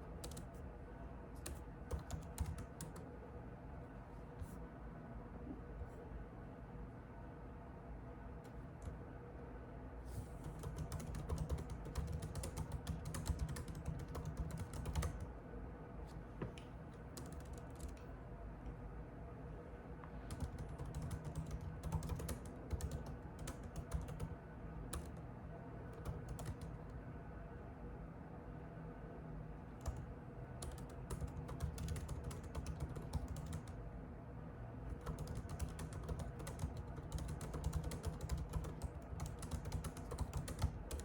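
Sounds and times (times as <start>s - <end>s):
steady low hum: 0.0s - 41.0s
typing on computer keyboard: 0.2s - 0.6s, 1.4s - 3.1s, 10.4s - 15.3s, 16.9s - 18.1s, 20.3s - 25.2s, 25.9s - 26.9s, 29.8s - 33.8s, 34.9s - 41.0s.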